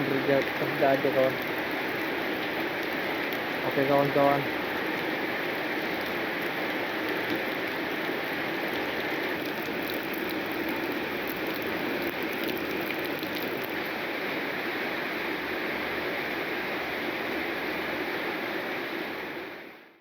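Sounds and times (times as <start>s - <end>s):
heavy rain falling: 0.0s - 14.2s.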